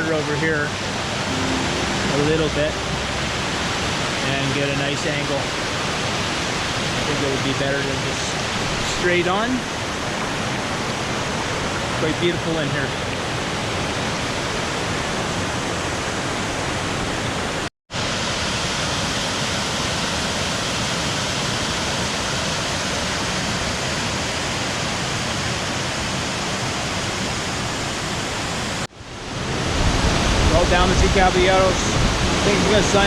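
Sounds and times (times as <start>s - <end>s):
waterfall rushing: 0.0s - 11.9s, 26.3s - 33.0s.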